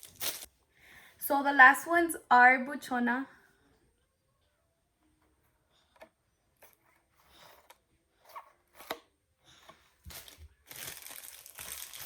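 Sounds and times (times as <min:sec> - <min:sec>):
packaging crinkling: 0:00.0 - 0:00.5, 0:10.1 - 0:12.0.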